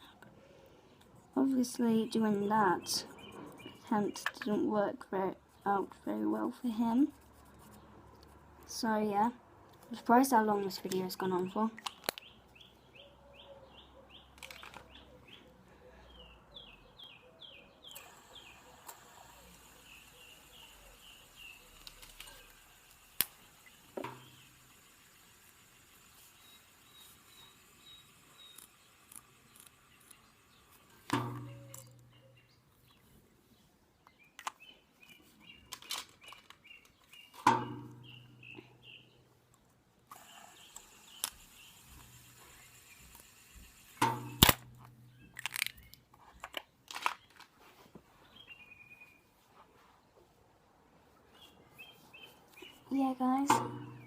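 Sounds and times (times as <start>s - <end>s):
songbird chirping: 0.0s - 24.7s, 26.0s - 43.2s, 44.1s - 50.3s, 51.0s - 54.0s
sharp clicks: 11.8s - 12.4s, 39.5s - 47.4s
steady hiss: 18.0s - 31.4s.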